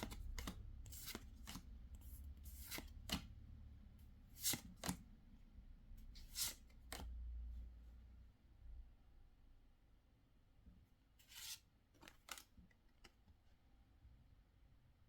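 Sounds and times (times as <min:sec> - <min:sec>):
trading cards flicking and sliding: 0:00.0 - 0:01.7, 0:02.4 - 0:03.3, 0:04.3 - 0:05.0, 0:06.2 - 0:07.1, 0:11.3 - 0:12.5.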